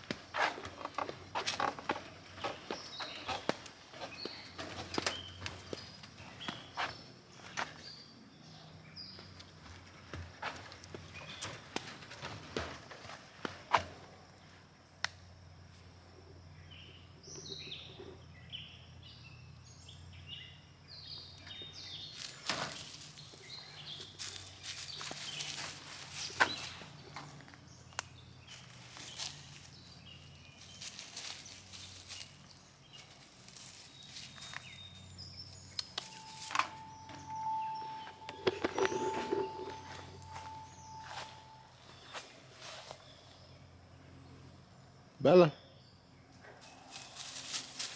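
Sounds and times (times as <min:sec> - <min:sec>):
footsteps on an outdoor path: 0:00.0 - 0:08.0, 0:28.5 - 0:43.0
bird calls: 0:21.1 - 0:43.4
low steady hum: 0:35.8 - 0:42.1.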